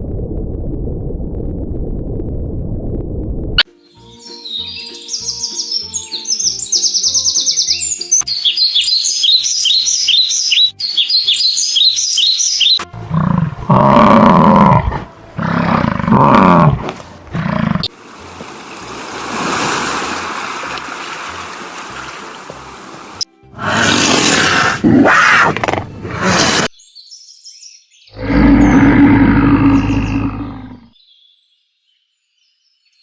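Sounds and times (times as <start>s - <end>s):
small bird chirping: 4.3s - 12.8s
big cat roaring: 13.0s - 17.9s, 23.6s - 26.7s, 28.2s - 30.9s.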